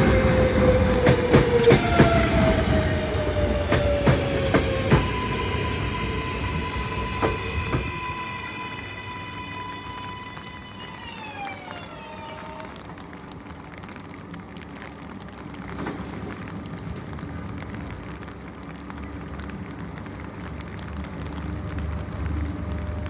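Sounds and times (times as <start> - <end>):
train motors whining: 0.0 - 12.9
low train rumble: 0.0 - 23.0.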